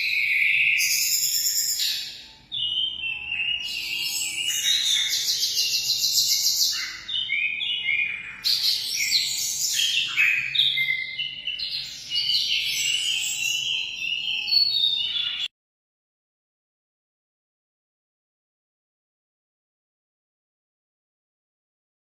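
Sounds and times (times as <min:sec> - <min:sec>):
finches chirping and twittering: 0:00.0 - 0:15.5.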